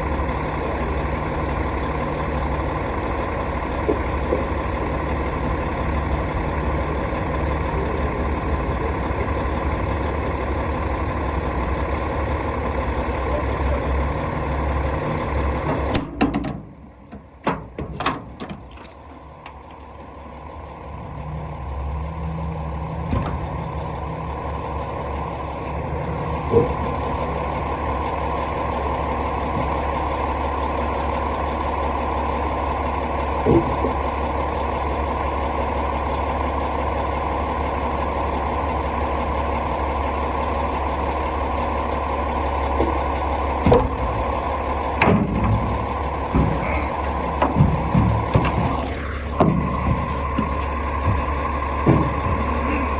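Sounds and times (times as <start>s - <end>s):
hvac unit humming: 42.4s - 52.9s.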